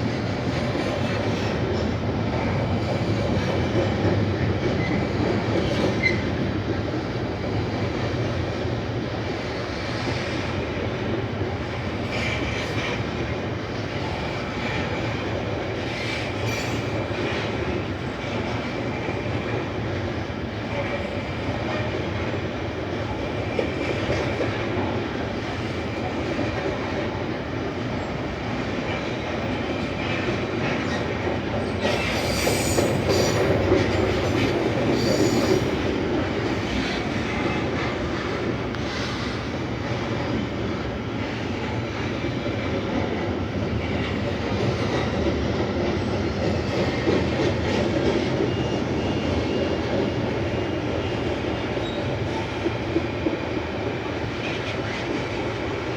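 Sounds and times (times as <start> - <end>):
train wheels rumbling and clicking: 0.0 - 55.9
wheel squeal: 31.8 - 35.8.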